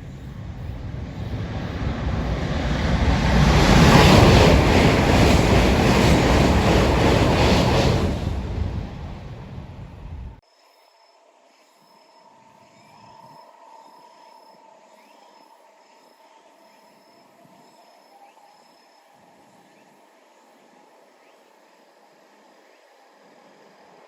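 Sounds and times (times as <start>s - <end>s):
insect calling in high pulses: 10.4s - 24.0s.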